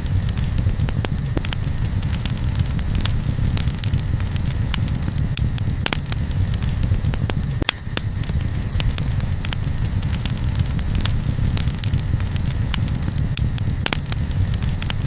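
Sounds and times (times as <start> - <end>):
campfire crackling and popping: 0.0 - 15.0
cricket chirping: 0.0 - 15.0.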